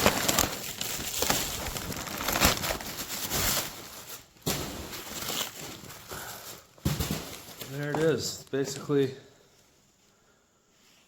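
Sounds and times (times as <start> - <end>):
packing material rustling: 0.0 - 9.0.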